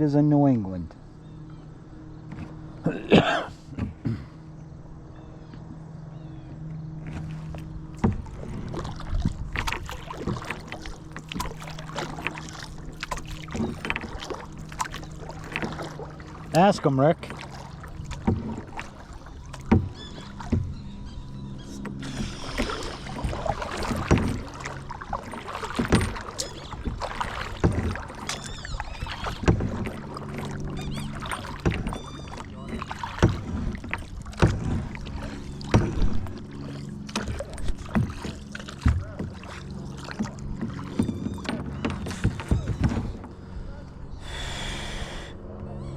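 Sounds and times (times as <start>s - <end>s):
low steady hum: 0.0s - 45.9s
paddle splashing water: 6.5s - 45.3s
paddle knocking on hull: 7.1s - 43.4s.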